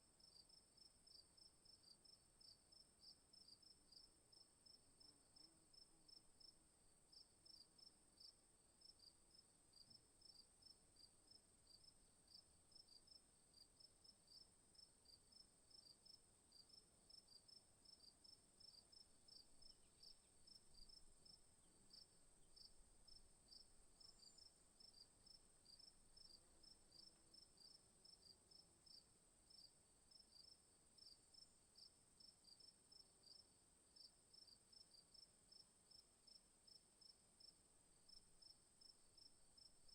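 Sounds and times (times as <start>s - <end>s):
crickets chirping: 15.0s - 37.5s, 38.1s - 39.9s.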